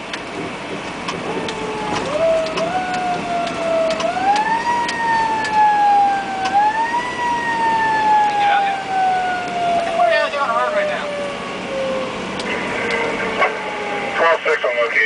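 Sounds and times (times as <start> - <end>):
fire truck siren wailing: 0.0 - 15.0
sharp clicks: 1.0 - 5.6.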